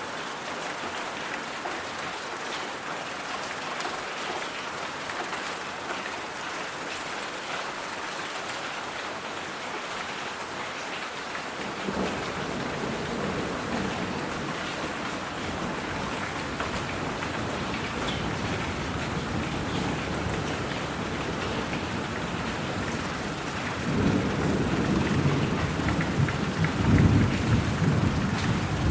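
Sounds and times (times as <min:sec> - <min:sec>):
steady rain pattering: 0:00.0 - 0:28.9
rolling thunder rumble: 0:11.8 - 0:28.9.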